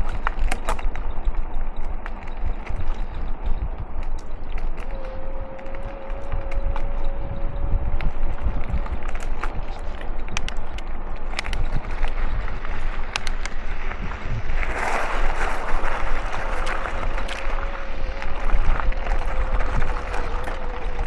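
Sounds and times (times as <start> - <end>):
bicycle rumbling: 0.0 - 21.0
wind buffeting microphone: 0.0 - 21.0
sharp ticks: 4.2 - 21.0
thin steady whine: 4.6 - 21.0.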